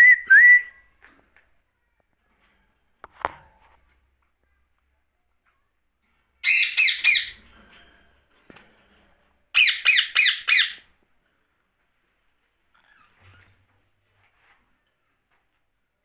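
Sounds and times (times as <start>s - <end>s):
parakeet screeching: 6.4s - 7.4s, 9.6s - 10.8s.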